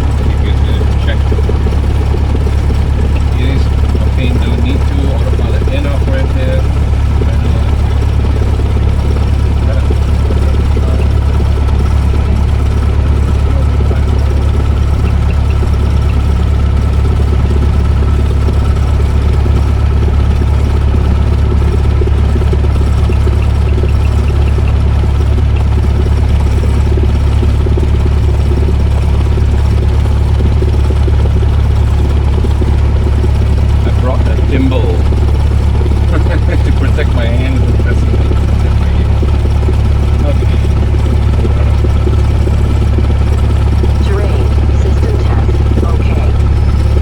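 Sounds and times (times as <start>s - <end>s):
aircraft engine idling: 0.0s - 47.0s.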